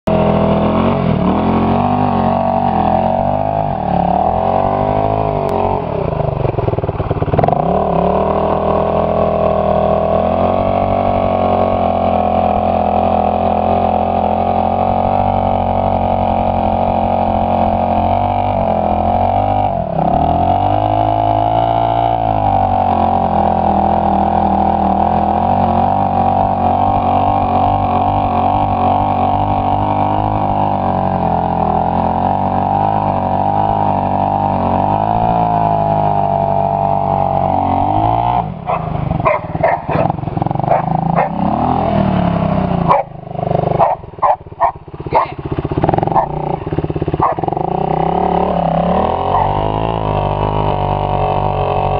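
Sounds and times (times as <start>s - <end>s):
dirt bike engine running: 0.0s - 51.9s.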